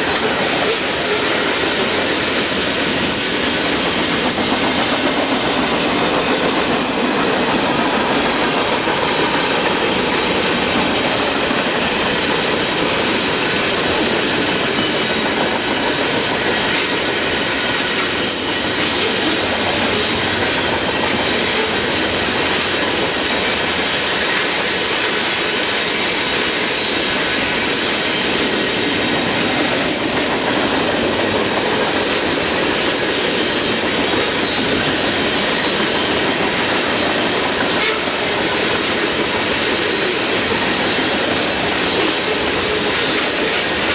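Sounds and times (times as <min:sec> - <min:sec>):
train wheels rumbling on rail: 0:00.0 - 0:43.9
wheels squealing: 0:06.8 - 0:07.8.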